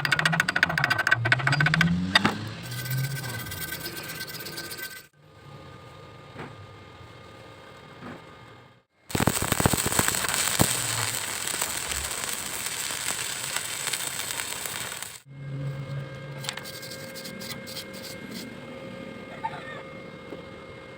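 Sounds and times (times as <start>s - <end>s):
arc welding crackle: 9.1s - 15.3s.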